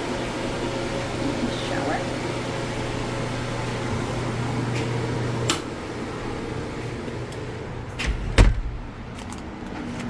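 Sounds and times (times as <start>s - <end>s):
low machine hum: 0.0s - 9.6s
loud thump: 8.0s - 9.0s.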